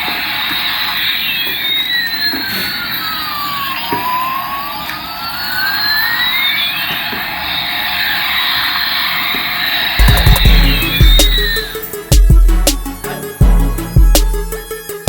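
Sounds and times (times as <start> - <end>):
loud music with a beat: 10.0 - 15.0.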